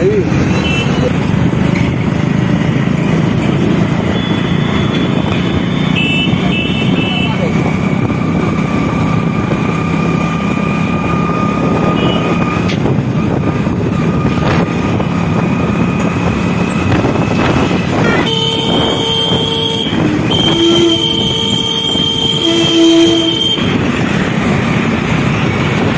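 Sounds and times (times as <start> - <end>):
motorcycle engine and wind rumble: 0.0 - 25.9
vehicle horn: 5.9 - 7.4, 11.9 - 12.4, 17.9 - 23.8.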